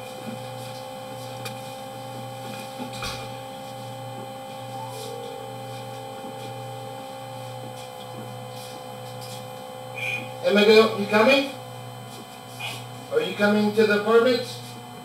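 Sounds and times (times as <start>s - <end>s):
steady machine hum: 0.0s - 15.0s
low drone: 4.7s - 7.1s.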